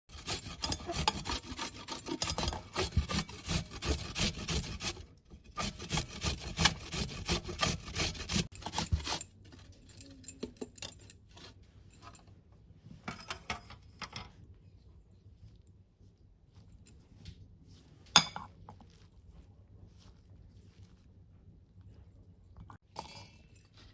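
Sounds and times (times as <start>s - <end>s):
rapid rasping scraping strokes: 0.1s - 9.3s.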